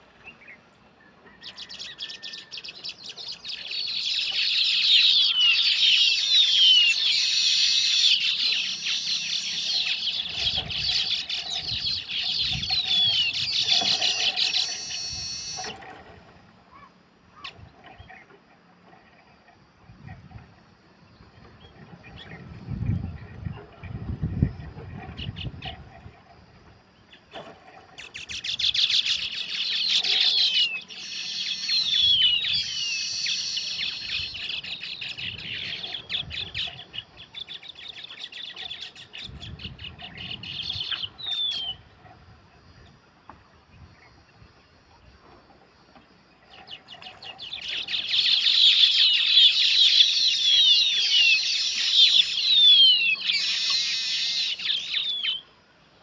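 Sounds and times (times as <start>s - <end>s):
birds chattering: 0.0s - 15.8s, 28.0s - 41.8s, 46.5s - 55.4s.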